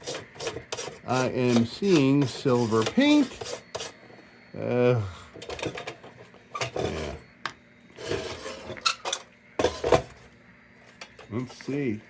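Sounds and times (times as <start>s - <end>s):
tool scraping on tin: 0.0s - 4.0s, 8.0s - 10.2s.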